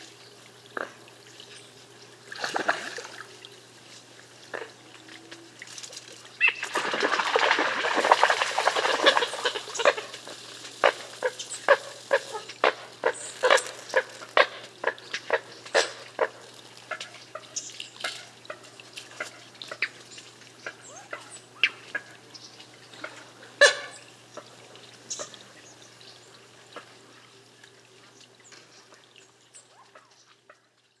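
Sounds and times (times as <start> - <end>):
water splashing: 2.2 - 3.6, 5.6 - 19.9
coots calling: 6.4 - 17.6, 20.6 - 22.2.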